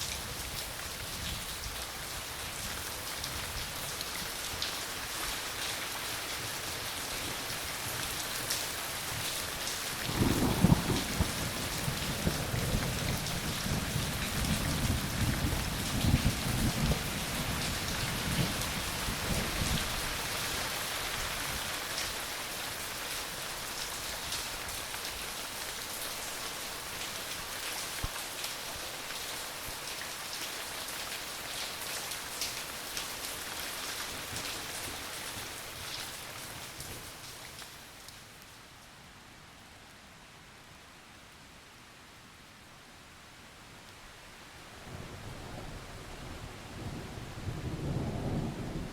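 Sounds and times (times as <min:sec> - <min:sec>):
rain pattering: 0:00.0 - 0:39.0, 0:43.8 - 0:48.9
low thunder rumble: 0:10.0 - 0:17.6, 0:44.9 - 0:48.9.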